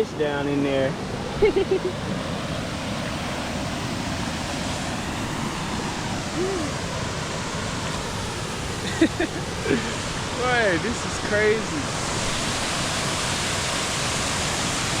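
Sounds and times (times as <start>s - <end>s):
waterfall rushing: 0.0s - 15.0s
faint voice: 6.4s - 6.8s.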